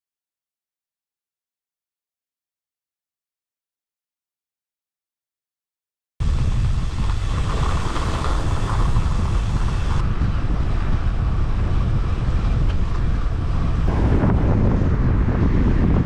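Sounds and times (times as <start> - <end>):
wind buffeting microphone: 6.2 - 16.0.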